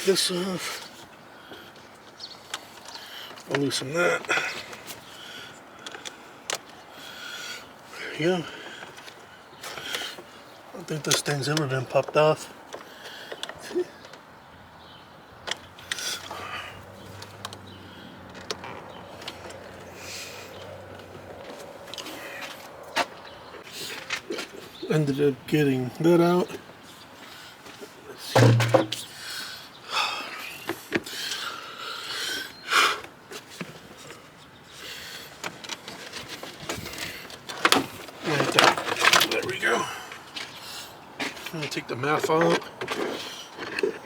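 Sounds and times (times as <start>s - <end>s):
plastic parts clicking and knocking: 28.4s - 29.1s.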